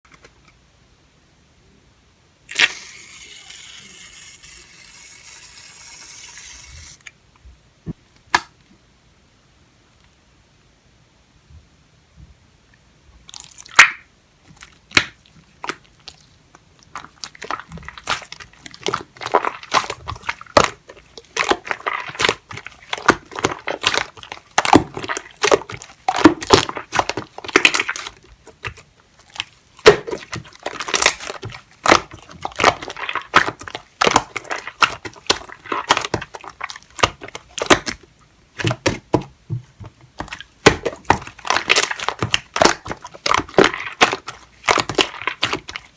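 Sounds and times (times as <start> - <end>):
slime squishing and squelching: 13.2 - 45.9.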